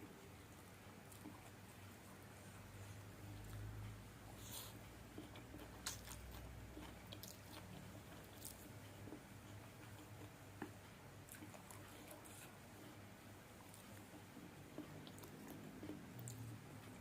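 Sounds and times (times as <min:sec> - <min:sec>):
chewing noodles: 0:04.4 - 0:13.0, 0:13.6 - 0:17.0.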